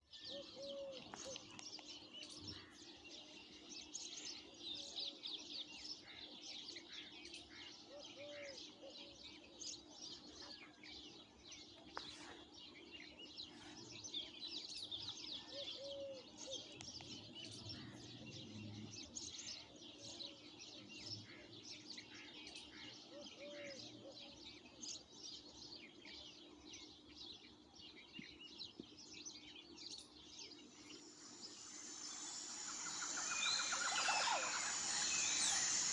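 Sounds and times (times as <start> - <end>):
small birds chirping: 0.0 - 35.9
faint steady hum: 26.3 - 35.9.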